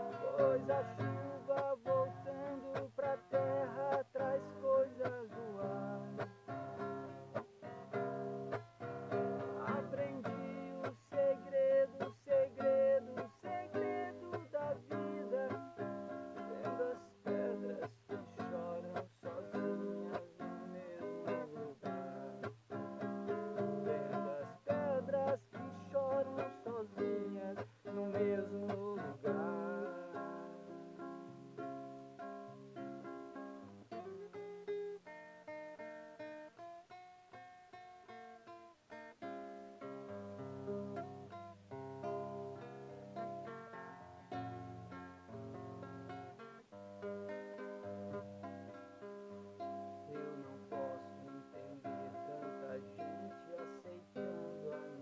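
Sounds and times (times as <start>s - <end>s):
acoustic guitar strumming: 0.0s - 55.0s
bending guitar melody: 0.0s - 55.0s.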